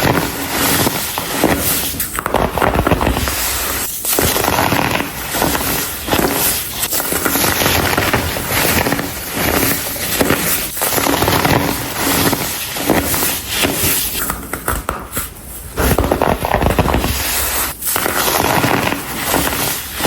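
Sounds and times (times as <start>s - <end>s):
baking soda chunks crunching by hand: 0.0s - 20.0s.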